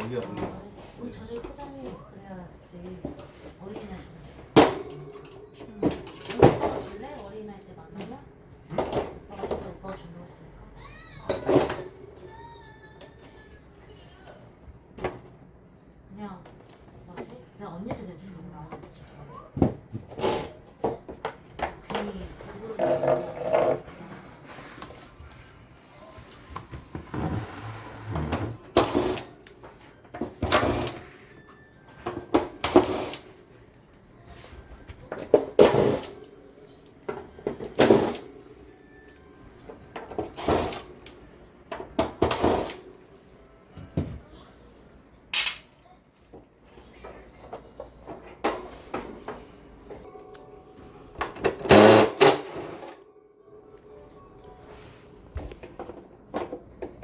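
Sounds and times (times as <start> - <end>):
clicks and knocks of parts: 45.3 - 45.7.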